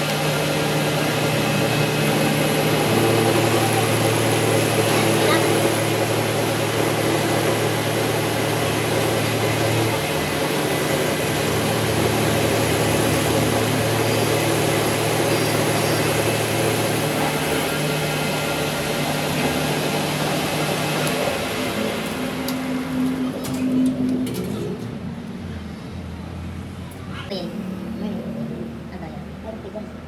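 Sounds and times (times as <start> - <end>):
machine tool motor hum: 0.0 - 25.7.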